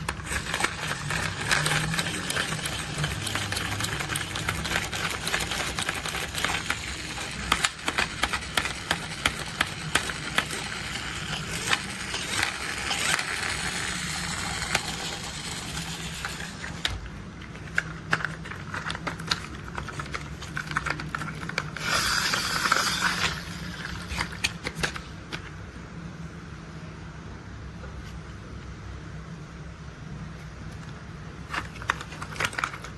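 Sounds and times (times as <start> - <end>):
plastic parts clicking and rattling: 0.0 - 25.4, 31.5 - 32.9.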